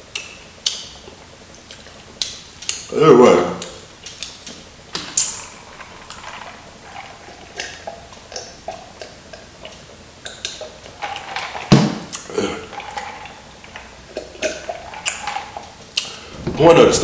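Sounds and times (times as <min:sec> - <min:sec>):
crunching and chewing mouth sounds: 0:00.1 - 0:02.9.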